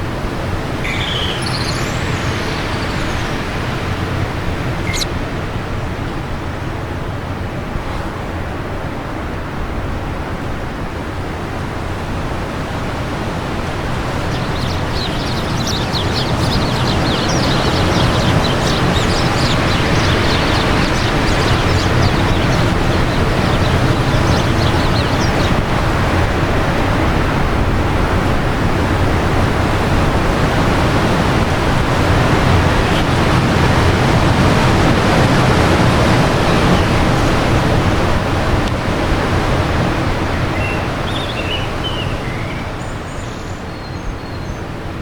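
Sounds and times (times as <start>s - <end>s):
small birds chirping: 0.0s - 5.3s, 13.6s - 26.5s, 31.9s - 37.5s, 40.2s - 44.7s
wind blowing: 0.0s - 7.0s, 12.6s - 43.0s.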